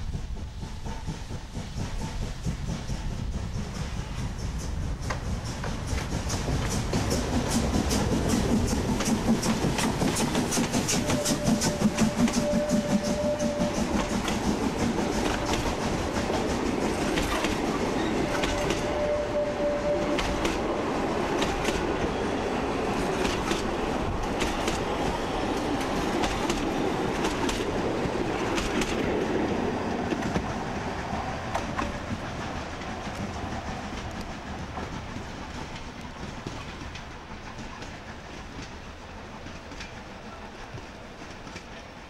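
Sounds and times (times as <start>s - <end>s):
railway coaches rumbling past: 0.0s - 42.0s
wheels clicking over rail joints: 0.8s - 42.0s
running gear squeal: 17.7s - 20.6s.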